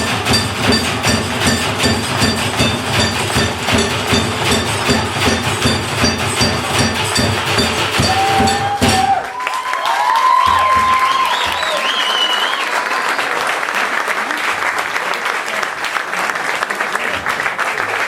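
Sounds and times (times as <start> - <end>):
ringing metallic percussion beat: 0.0 - 9.3
audience cheering and whistling: 8.0 - 13.7.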